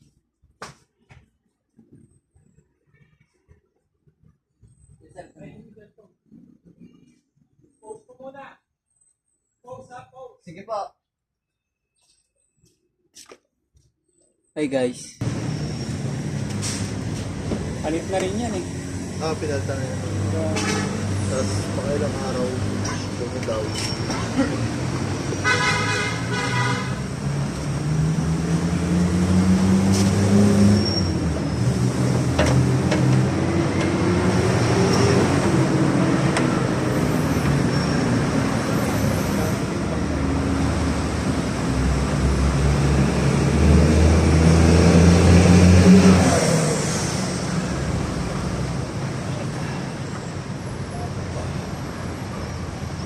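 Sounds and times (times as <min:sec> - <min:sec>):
vehicle engines passing: 0:15.2 - 0:53.0.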